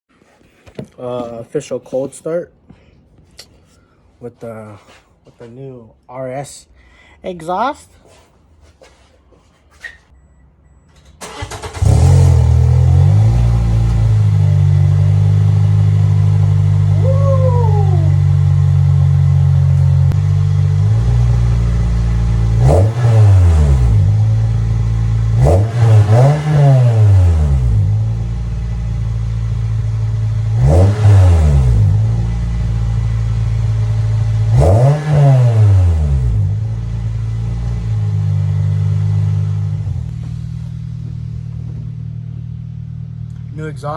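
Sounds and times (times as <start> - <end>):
car engine starting: 10.1 - 43.9
engine revving: 11.2 - 43.9.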